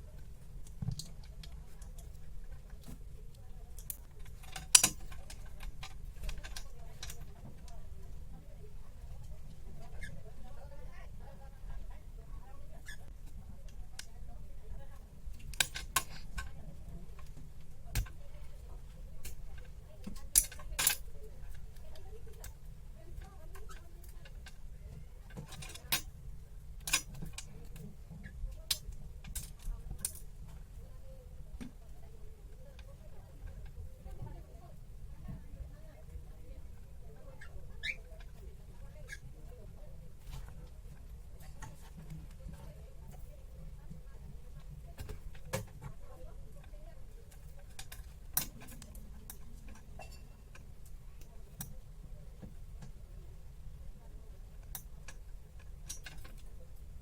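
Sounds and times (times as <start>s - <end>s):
low steady hum: 0.0s - 57.0s
small clicks and taps of tools: 0.6s - 7.8s, 26.8s - 30.6s, 46.6s - 51.8s, 54.6s - 56.6s.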